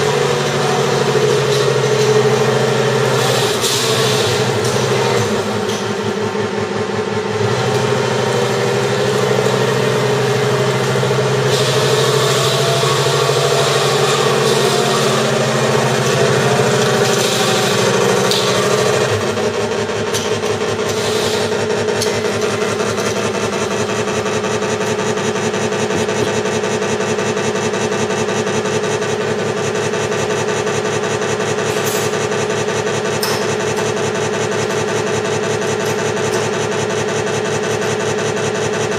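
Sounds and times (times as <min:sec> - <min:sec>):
deeper engine note: 0:00.0 - 0:20.7
simulated tank engine from speaker: 0:00.0 - 0:38.9.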